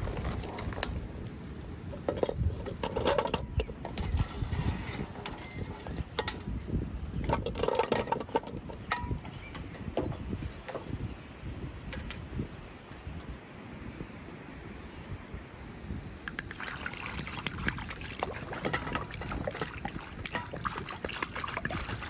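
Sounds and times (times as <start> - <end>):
utensils clinking in a bowl: 17.2 - 22.0.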